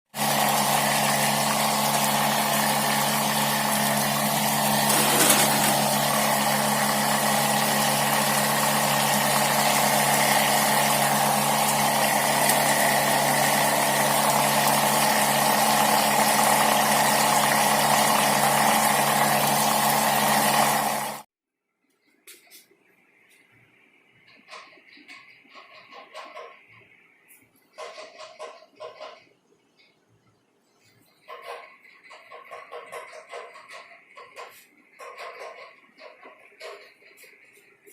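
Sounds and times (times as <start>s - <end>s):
water pump motor humming: 0.1s - 21.3s.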